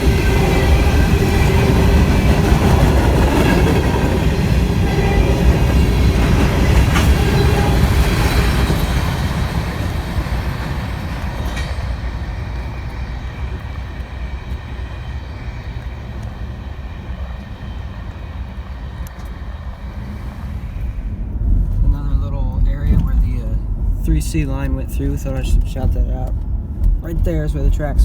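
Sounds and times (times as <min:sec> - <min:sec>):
train rolling past on tracks: 0:00.0 - 0:28.0.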